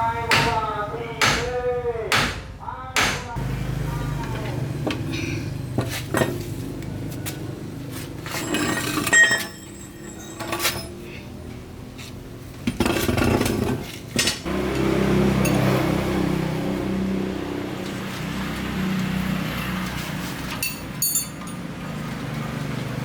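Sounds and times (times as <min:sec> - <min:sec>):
metal tools clinking: 0:08.2 - 0:11.0, 0:15.4 - 0:15.7, 0:20.5 - 0:21.8
ringing metallic clink: 0:20.6 - 0:21.6.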